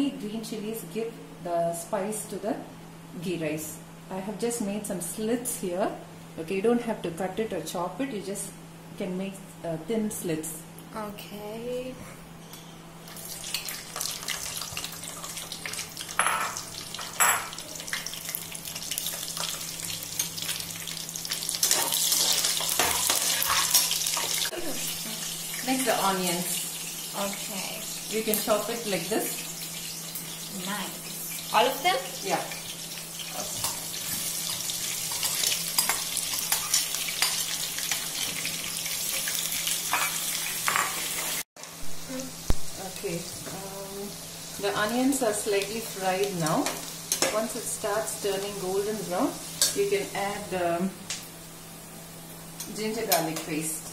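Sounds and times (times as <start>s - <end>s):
spices sizzling in hot oil: 13.0s - 53.9s.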